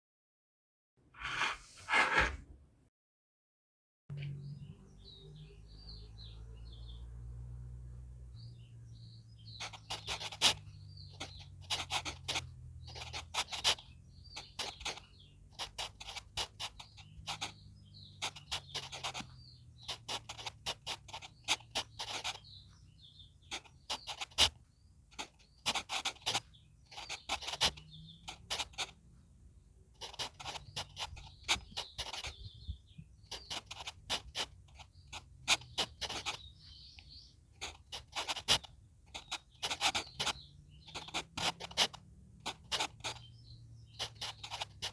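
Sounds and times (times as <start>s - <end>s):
pencil scratching on paper: 1.2s - 2.4s, 9.5s - 24.6s, 25.2s - 29.0s, 30.0s - 32.6s, 33.3s - 44.9s
birds chirping: 4.1s - 7.1s, 8.3s - 44.9s.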